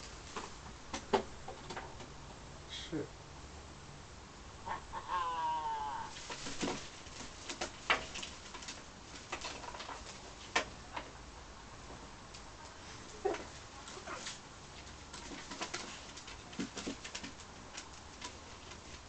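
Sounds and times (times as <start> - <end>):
macaw calling: 4.6 - 6.1.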